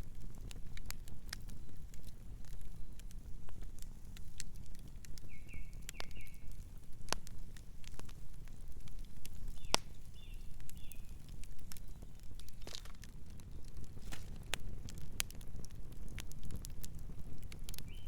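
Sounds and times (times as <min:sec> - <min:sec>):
campfire crackling and popping: 0:00.0 - 0:18.0
night bird chirping: 0:09.5 - 0:11.2.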